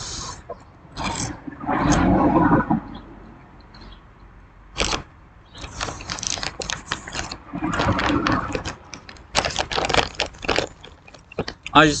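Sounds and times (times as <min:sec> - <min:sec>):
popcorn crunching when chewed: 0:04.8 - 0:05.0, 0:05.6 - 0:11.8.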